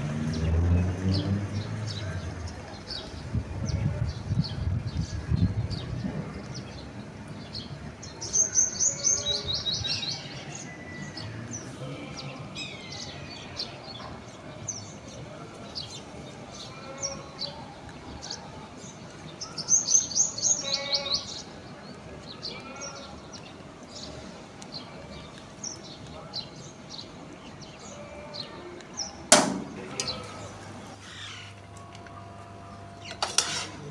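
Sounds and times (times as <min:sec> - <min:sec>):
songbirds chirping: 0:00.0 - 0:33.9.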